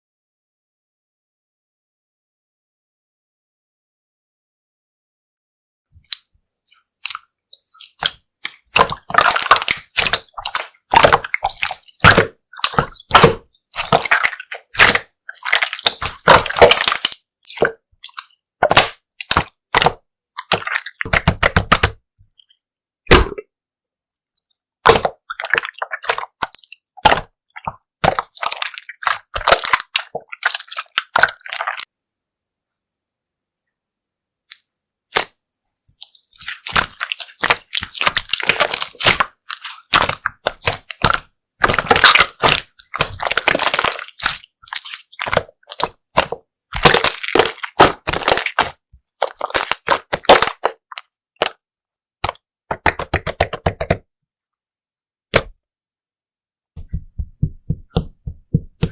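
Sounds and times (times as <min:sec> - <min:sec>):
slime squishing with wet clicks: 0:06.0 - 0:22.5, 0:24.4 - 0:31.9, 0:34.5 - 0:51.6.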